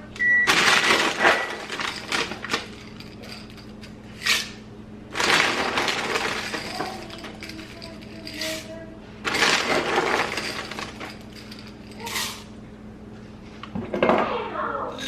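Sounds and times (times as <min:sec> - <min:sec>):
chocolate chips rattling into bowl: 0:00.5 - 0:03.9, 0:05.1 - 0:08.7, 0:09.3 - 0:12.5.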